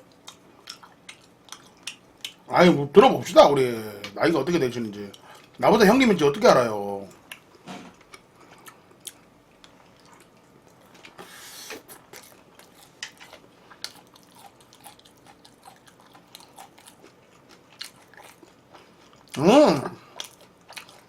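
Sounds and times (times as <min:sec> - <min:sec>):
person chewing crunchy food: 0:00.0 - 0:02.5, 0:07.2 - 0:19.4, 0:20.0 - 0:21.0.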